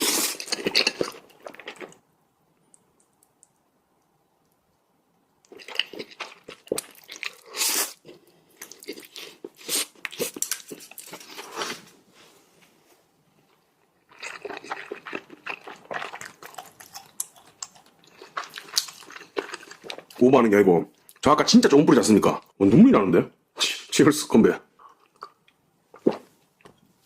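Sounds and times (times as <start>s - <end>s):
chewing and wet mouth sounds: 0.0s - 11.6s, 13.4s - 20.2s, 24.8s - 26.8s.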